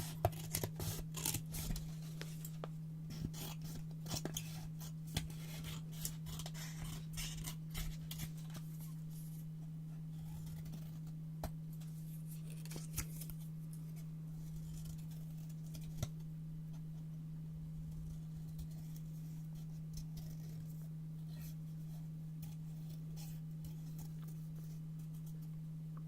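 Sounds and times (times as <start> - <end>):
scissors snipping paper: 0.0 - 1.9, 3.1 - 8.6
steady low hum: 0.0 - 26.0.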